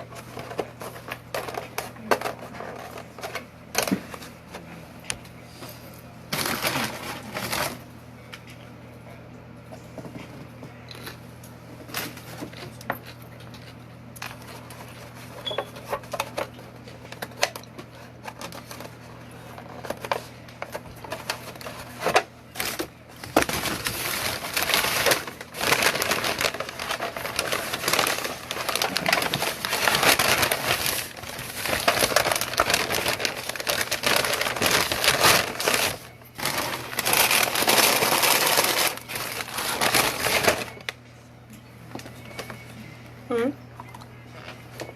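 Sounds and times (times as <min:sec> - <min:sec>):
crackling rustle: 0:23.4 - 0:40.9.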